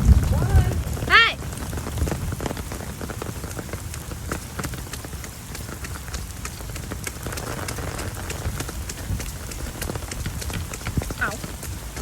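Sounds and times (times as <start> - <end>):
steady low rumble: 0.0 - 4.3
rain pattering: 0.0 - 12.0.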